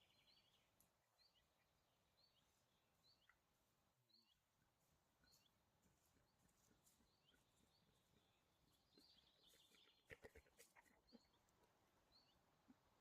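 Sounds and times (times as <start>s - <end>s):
faint bird chirps: 5.2s - 12.5s.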